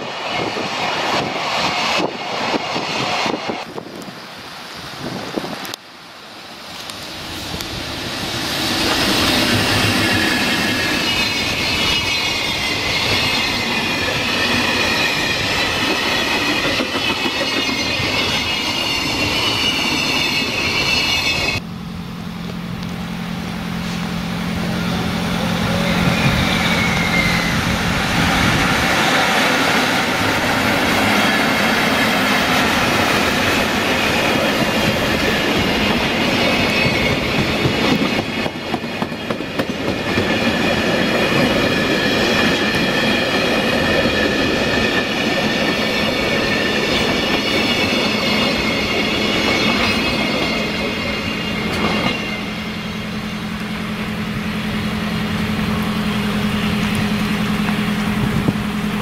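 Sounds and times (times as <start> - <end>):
train wheels clattering on rails: 6.8 - 21.6, 26.0 - 59.0
high-pitched wheel squeal: 8.7 - 21.6, 24.6 - 38.3, 41.4 - 53.5.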